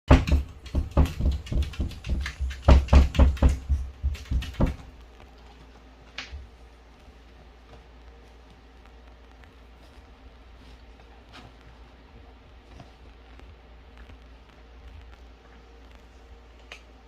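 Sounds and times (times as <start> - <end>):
knocks and thuds: 0.1 - 5.0.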